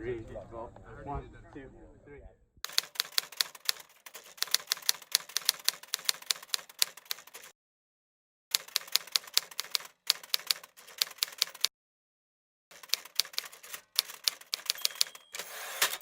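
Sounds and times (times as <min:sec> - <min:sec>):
typewriter keys clacking: 0:02.7 - 0:07.5, 0:08.6 - 0:11.7, 0:12.7 - 0:16.0.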